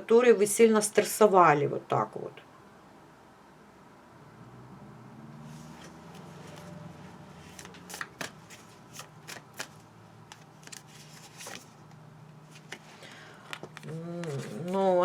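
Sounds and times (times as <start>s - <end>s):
cards being shuffled by hand: 7.4s - 15.0s.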